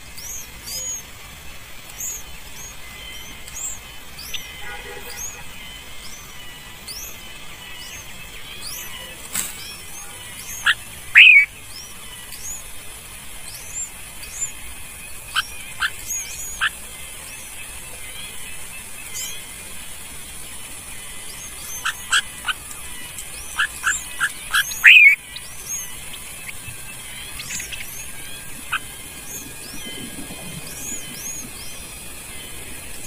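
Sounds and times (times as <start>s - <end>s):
small birds chirping: 0.0s - 33.0s
squeaky bird calls: 2.0s - 12.6s, 15.2s - 17.6s, 21.3s - 29.4s.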